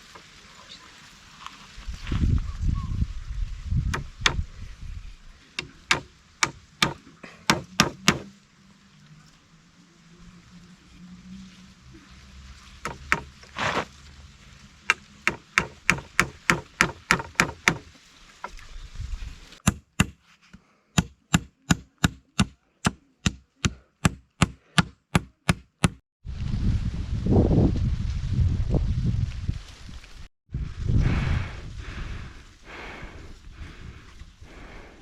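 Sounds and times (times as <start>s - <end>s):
chopping into wood: 3.9s - 4.4s, 5.6s - 8.3s, 12.8s - 13.8s, 14.9s - 17.9s, 19.6s - 20.2s, 21.0s - 26.0s
loud rustling: 12.3s - 15.3s.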